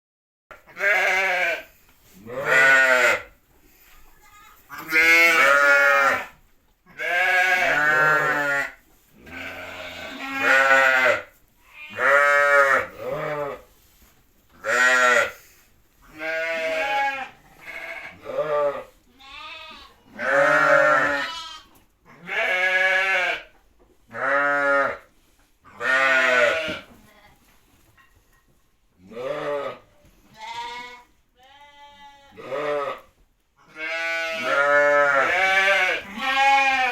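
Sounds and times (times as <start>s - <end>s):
lamb bleating: 0.7s - 3.3s, 4.2s - 13.6s, 14.6s - 15.4s, 16.0s - 23.5s, 24.1s - 25.0s, 25.7s - 27.4s, 29.1s - 36.9s.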